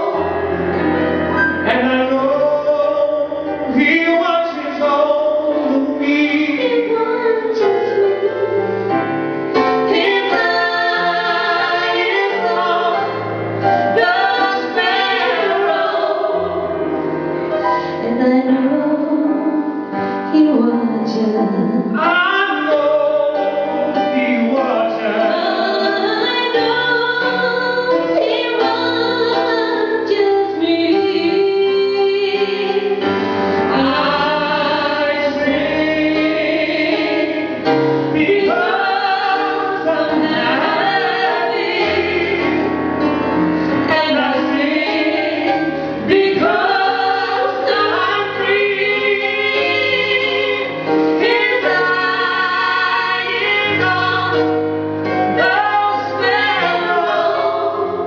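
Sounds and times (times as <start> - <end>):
choir singing: 2.4 - 17.4, 30.9 - 58.0.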